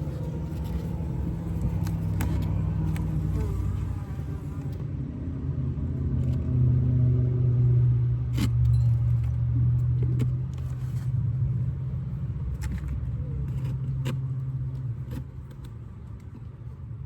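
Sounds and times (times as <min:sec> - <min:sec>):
cars driving past: 0:00.0 - 0:12.5.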